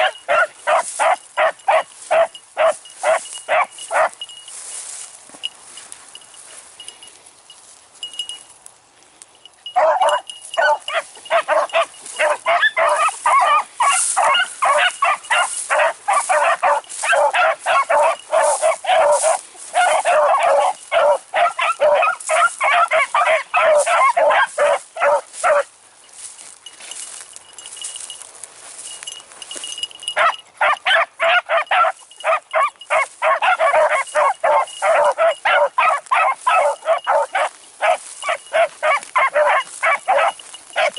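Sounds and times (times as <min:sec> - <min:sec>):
pack of hounds baying: 0:00.0 - 0:04.4, 0:09.7 - 0:25.8, 0:28.9 - 0:40.9.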